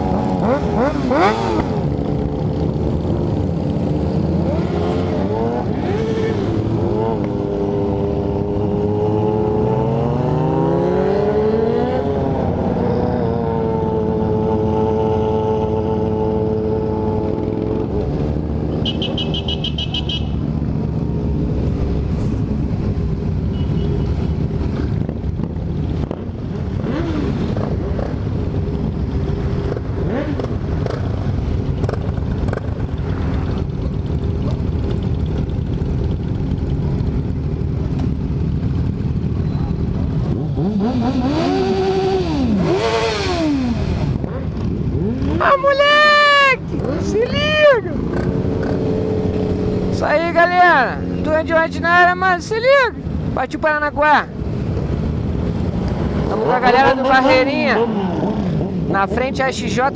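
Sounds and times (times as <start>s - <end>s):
motorcycle engine accelerating: 0.0s - 45.6s.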